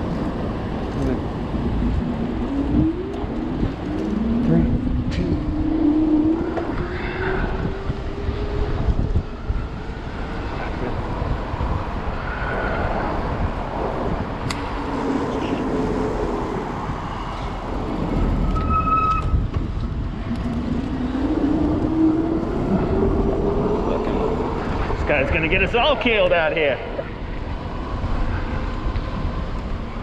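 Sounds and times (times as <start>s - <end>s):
street traffic: 0.0s - 30.0s
wind rumble on camera: 0.0s - 30.0s
electric bike motor whine: 1.6s - 12.5s.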